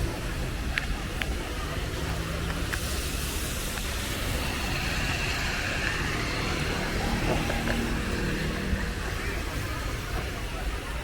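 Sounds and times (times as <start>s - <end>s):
motor vehicle rumble: 0.0s - 11.0s
hiss: 1.8s - 8.2s.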